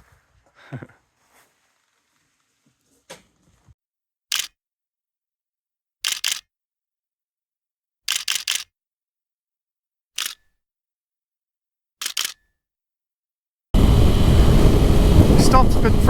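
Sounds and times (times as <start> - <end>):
camera shutter clicks: 4.3 - 4.5, 6.1 - 6.4, 8.1 - 8.7, 10.2 - 10.4, 12.0 - 12.4.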